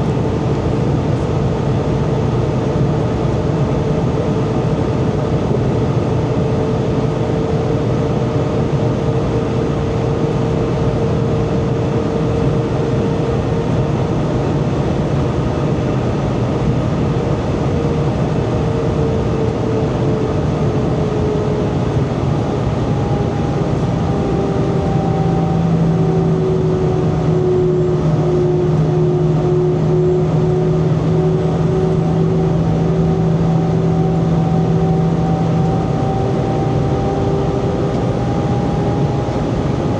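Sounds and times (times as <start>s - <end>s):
airplane cabin engine roar: 0.0s - 39.9s
low hum: 15.1s - 39.9s.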